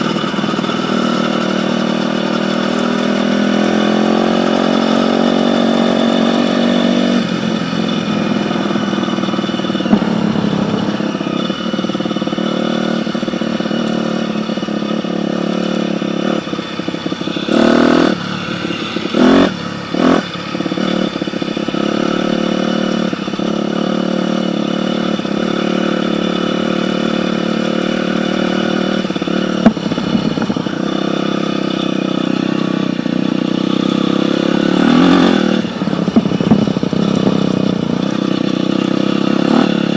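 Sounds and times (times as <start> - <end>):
dirt bike engine running: 0.0 - 39.9
sharp knock: 9.8 - 11.0, 29.6 - 30.5.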